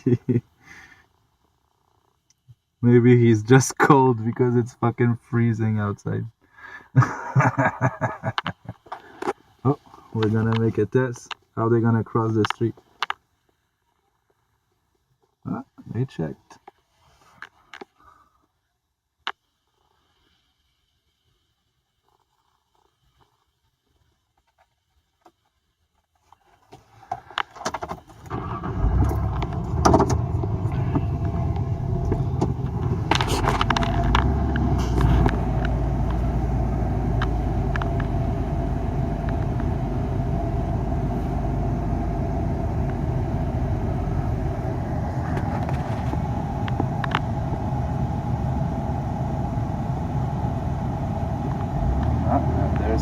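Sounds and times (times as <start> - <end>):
engine and road rumble: 27.1 - 53.0.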